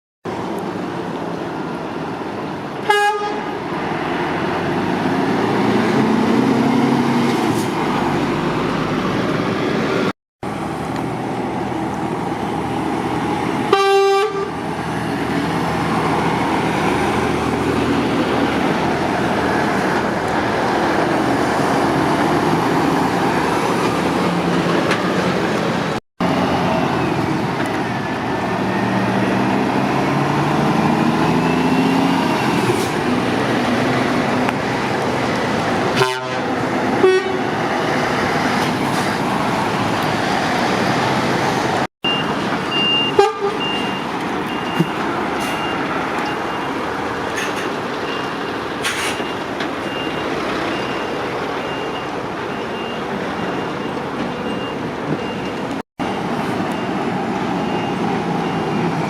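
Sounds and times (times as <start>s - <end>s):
motorway traffic: 0.2s - 59.0s
vehicle horn toots: 2.9s - 3.5s, 13.7s - 14.6s, 36.0s - 37.5s, 43.1s - 43.8s.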